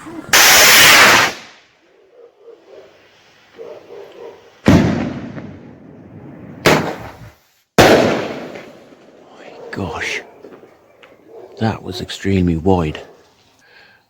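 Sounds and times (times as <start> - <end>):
firework shells bursting with echo: 4.6 - 9.3.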